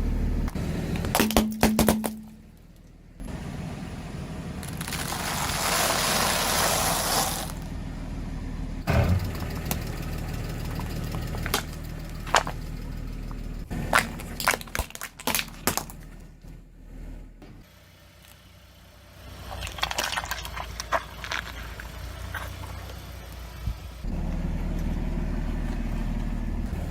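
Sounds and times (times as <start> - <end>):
low engine hum: 0.0 - 26.9
tyres crushing objects: 1.0 - 2.4, 4.6 - 7.7, 13.7 - 16.2, 19.4 - 23.2
sharp cracks and pops: 13.9 - 16.1.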